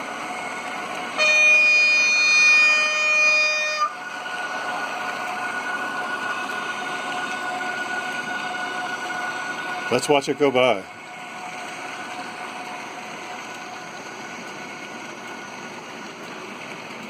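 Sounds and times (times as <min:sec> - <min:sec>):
model train running on track: 0:00.0 - 0:17.0
model train horn: 0:01.2 - 0:04.1.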